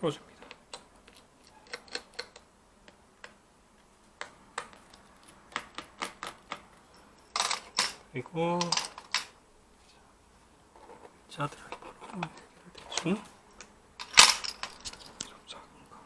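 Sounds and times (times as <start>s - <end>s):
scraping rustles: 10.7s - 15.4s.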